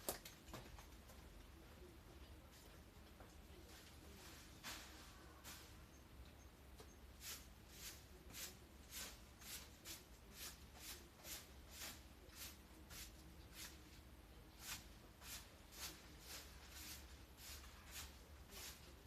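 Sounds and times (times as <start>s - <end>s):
broom sweeping ground: 3.6s - 6.0s, 7.1s - 19.0s.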